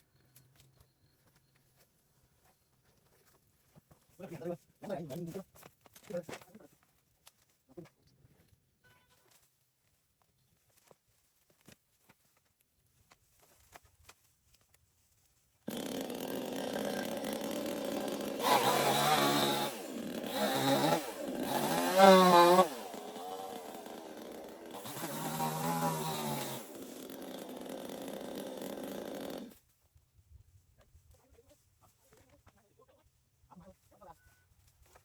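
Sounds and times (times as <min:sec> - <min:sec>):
chainsaw revving: 0:15.7 - 0:29.6.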